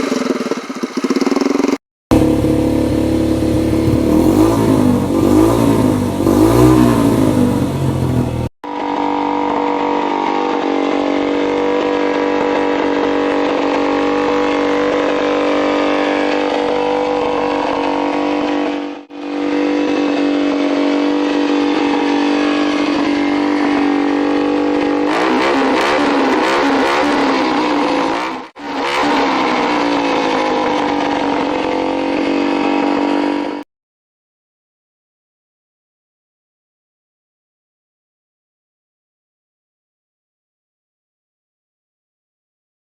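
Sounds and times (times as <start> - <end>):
dirt-bike engine running hard: 0.0 - 33.6.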